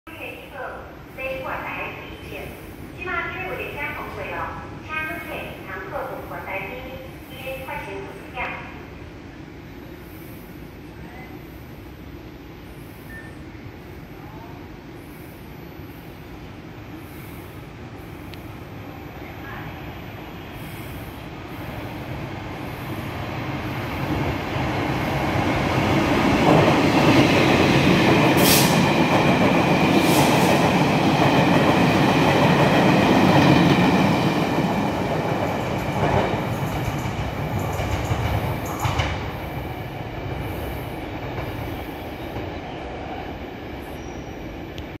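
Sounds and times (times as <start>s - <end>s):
train wheels rumbling on rails: 20.6s - 45.0s.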